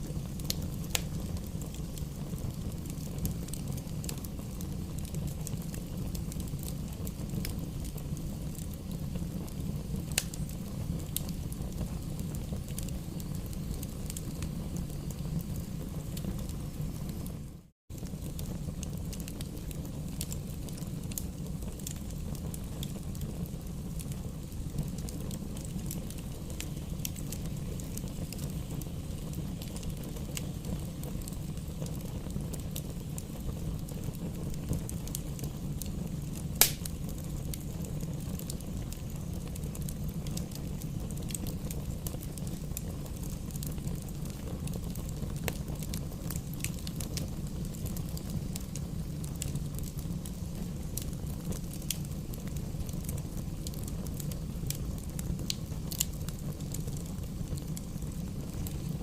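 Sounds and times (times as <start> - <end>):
wood fire crackling: 0.0 - 59.0
loud sharp pop: 36.6 - 36.9.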